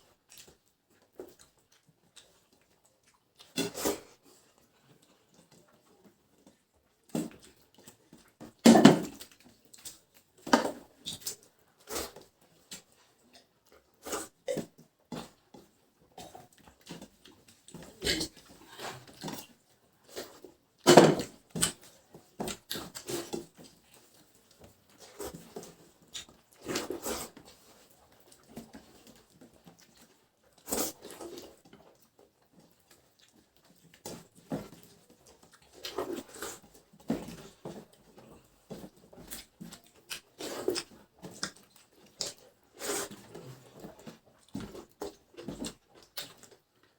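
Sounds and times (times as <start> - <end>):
chewing noises: 0.3 - 6.6, 22.5 - 34.3, 39.2 - 46.9.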